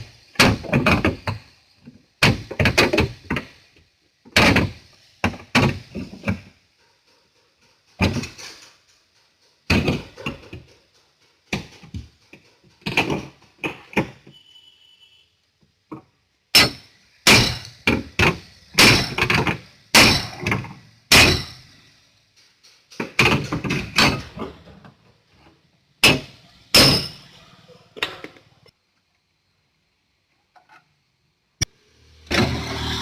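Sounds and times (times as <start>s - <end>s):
hammer on sheet metal: 20.0s - 20.4s, 21.1s - 21.6s.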